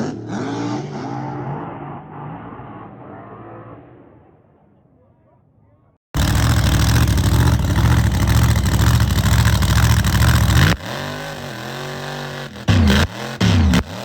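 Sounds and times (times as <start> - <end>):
car engine revving: 6.2 - 14.0.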